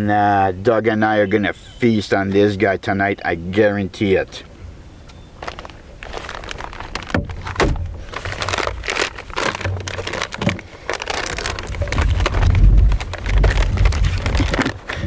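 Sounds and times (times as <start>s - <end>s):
rustling and crinkling handling noises: 5.0s - 15.0s
low rumble: 10.9s - 15.0s.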